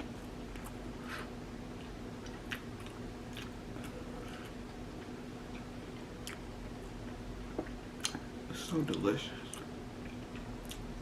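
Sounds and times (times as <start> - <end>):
steady low hum: 0.0 - 11.0
lip smacks and wet chewing clicks: 5.5 - 6.5, 8.9 - 10.9.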